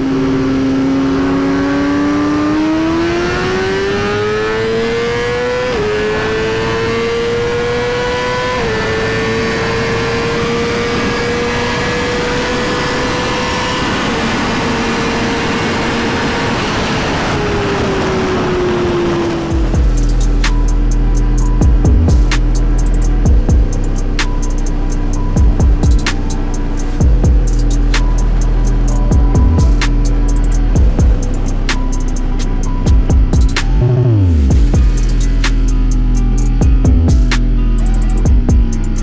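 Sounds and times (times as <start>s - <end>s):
motorcycle engine accelerating: 0.0s - 39.0s
steady rush of noise: 16.5s - 39.0s.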